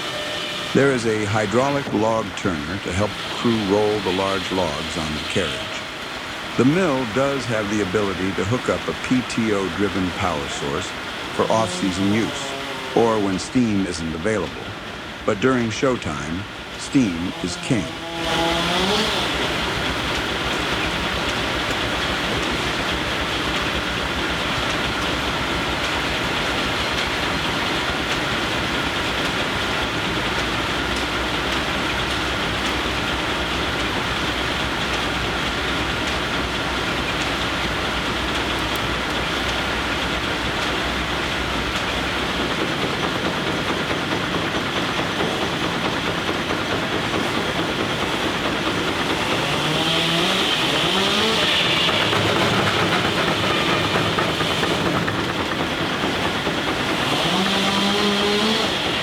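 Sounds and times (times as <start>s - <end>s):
pitch-sliding tone: 0.0s - 14.7s
steam sawmill clatter: 0.0s - 59.0s.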